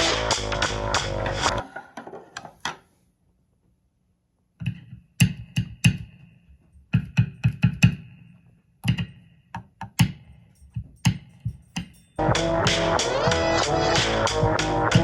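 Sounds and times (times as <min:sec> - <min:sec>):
music: 0:00.0 - 0:01.6, 0:12.2 - 0:15.0.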